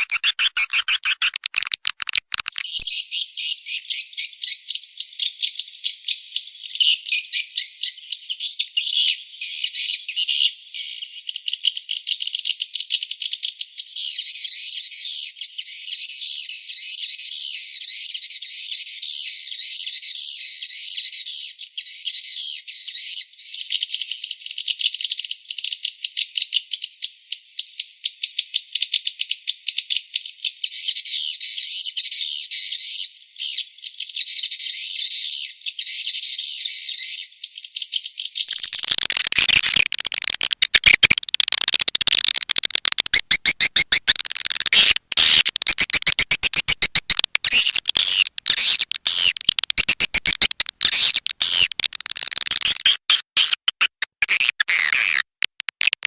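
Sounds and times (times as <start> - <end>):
swiftlets twittering chirps: 0.0 - 2.9, 38.5 - 55.2
sharp clicking chirps: 0.0 - 3.0, 38.4 - 56.0.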